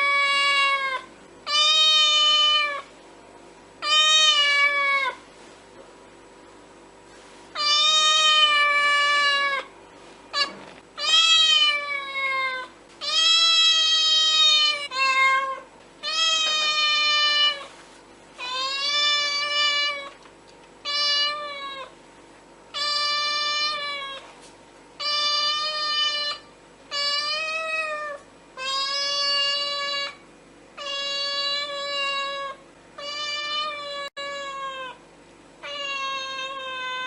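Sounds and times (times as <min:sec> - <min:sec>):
cat meowing: 0:00.0 - 0:02.9, 0:03.8 - 0:05.2, 0:07.6 - 0:09.7, 0:10.3 - 0:17.7, 0:18.4 - 0:20.2, 0:20.8 - 0:21.9, 0:25.0 - 0:30.2, 0:30.8 - 0:35.0, 0:35.6 - 0:37.0.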